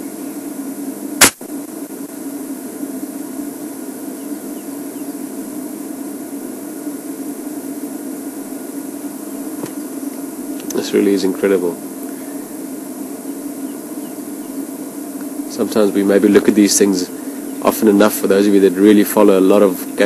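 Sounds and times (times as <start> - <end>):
sharp click: 1.2 - 1.4.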